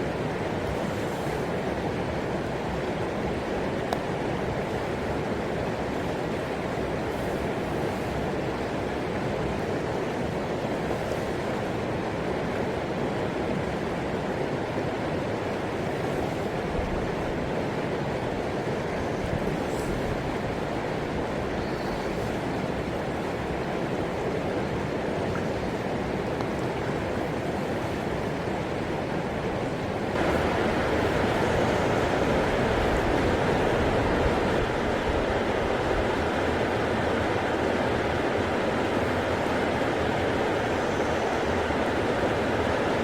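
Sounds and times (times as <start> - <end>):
river water rushing: 0.0 - 43.0.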